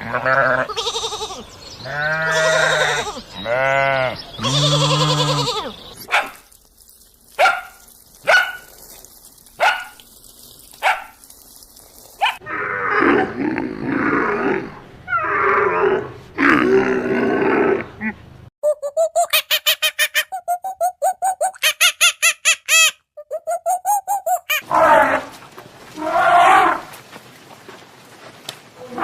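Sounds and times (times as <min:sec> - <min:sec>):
animal bleating: 0:00.0 - 0:05.8.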